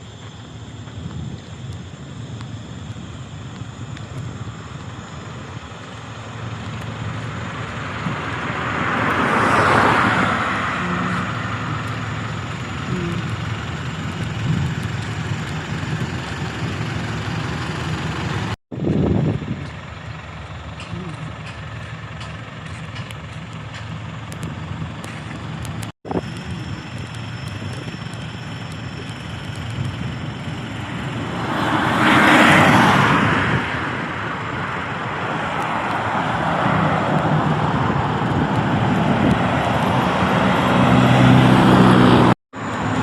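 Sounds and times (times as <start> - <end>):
diesel truck engines rumbling: 0.0 - 43.0
truck passing close: 0.0 - 43.0.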